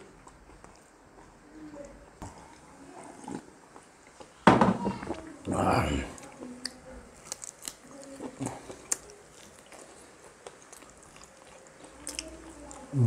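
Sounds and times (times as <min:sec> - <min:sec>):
biting and chewing fried chicken: 0:05.5 - 0:13.0.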